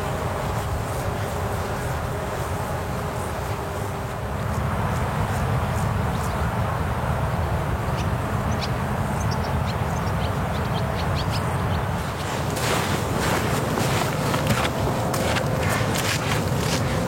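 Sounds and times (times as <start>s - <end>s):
birds chirping: 7.8s - 17.0s.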